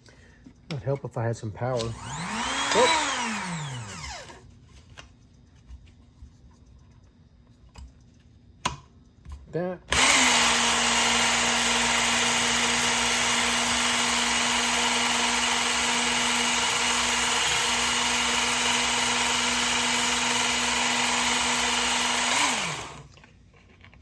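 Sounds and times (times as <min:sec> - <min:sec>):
sharpener motor and belt humming: 0:01.8 - 0:04.4, 0:09.9 - 0:23.1
motor spinning down: 0:01.9 - 0:04.4, 0:09.9 - 0:23.1.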